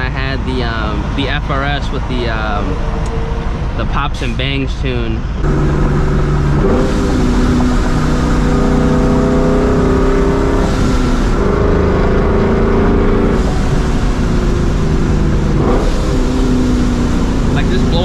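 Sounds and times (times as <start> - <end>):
car engine shifting gears: 0.0 - 18.0.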